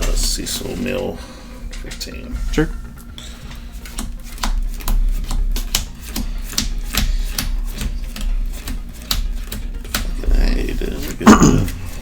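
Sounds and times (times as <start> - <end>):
playing cards slapped on table: 4.0 - 10.2.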